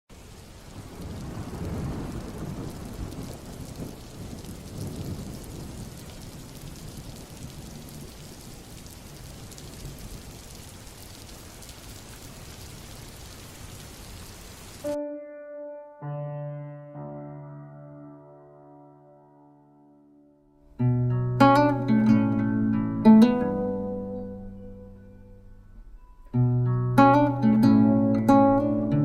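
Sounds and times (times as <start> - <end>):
rain falling: 0.1 - 15.0, 20.7 - 29.0
thunder rumbling: 0.2 - 14.0
piano notes: 14.8 - 29.0.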